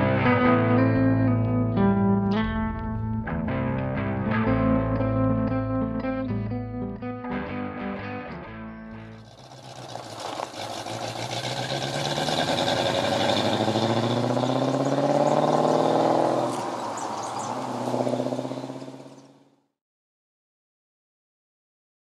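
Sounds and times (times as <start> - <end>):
car engine accelerating: 8.5 - 19.6.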